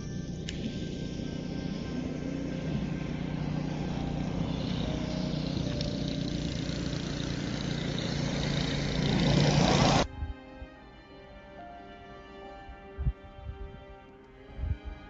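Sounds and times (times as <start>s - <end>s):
low engine hum: 0.0s - 10.1s
road noise: 0.0s - 12.2s.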